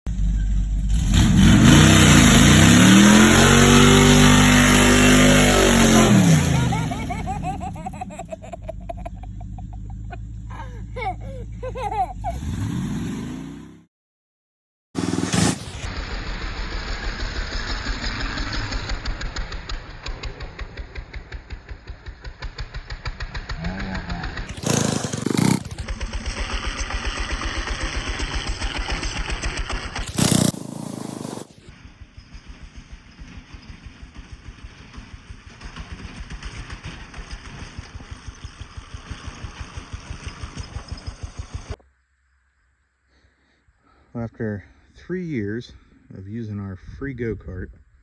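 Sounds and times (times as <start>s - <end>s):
go-kart engine revving: 0.1s - 13.9s, 15.0s - 31.7s, 33.2s - 41.8s
loud burst of noise: 15.0s - 19.3s.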